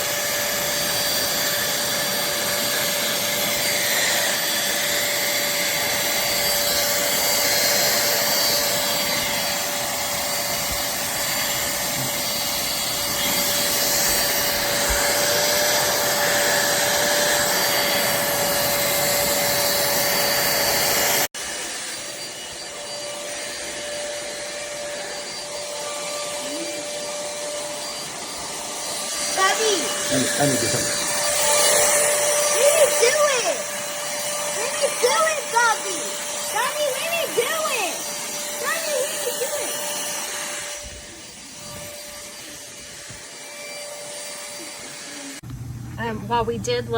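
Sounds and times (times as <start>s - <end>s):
handheld vacuum cleaner running: 0.0s - 46.9s.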